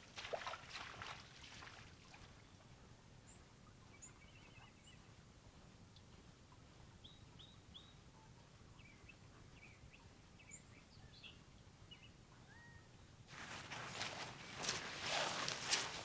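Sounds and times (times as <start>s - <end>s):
faint bird chirps: 11.9s - 13.0s
loud rustling: 13.3s - 16.0s.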